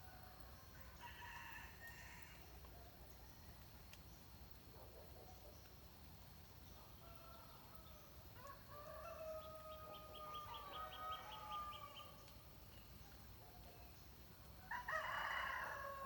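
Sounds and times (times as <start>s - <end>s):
distant rooster crowing: 8.4s - 12.1s, 14.7s - 16.0s.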